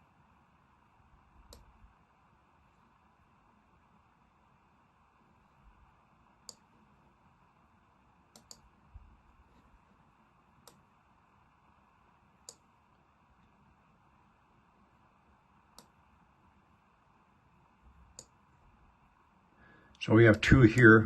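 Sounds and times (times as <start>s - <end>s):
faint room hiss: 0.0s - 21.0s
computer mouse clicking: 1.4s - 1.7s, 6.4s - 6.7s, 8.3s - 8.7s, 10.6s - 10.9s, 12.4s - 12.7s, 15.7s - 16.0s, 18.1s - 18.4s.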